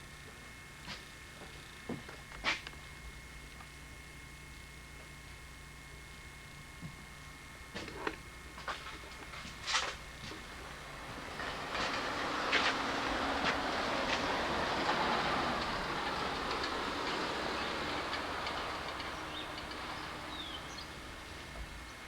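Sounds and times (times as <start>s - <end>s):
vehicle passing by: 11.0s - 21.2s.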